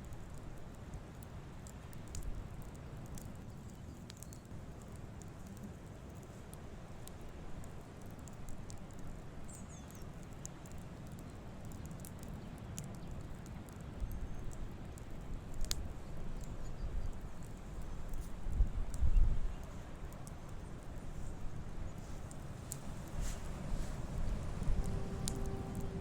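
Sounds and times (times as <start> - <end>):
campfire crackling: 0.0 - 26.0
low rumble: 23.0 - 26.0.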